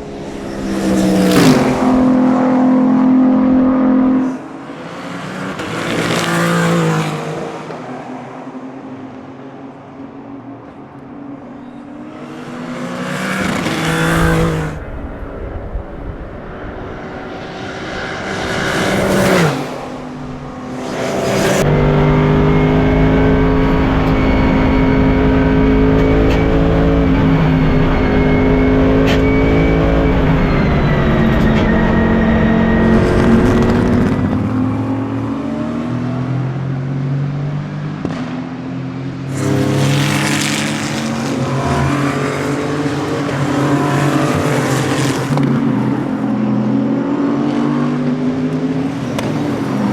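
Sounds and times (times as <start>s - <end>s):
race cars passing at speed: 0.0s - 49.9s
race car engine running: 12.4s - 35.5s, 39.3s - 46.5s.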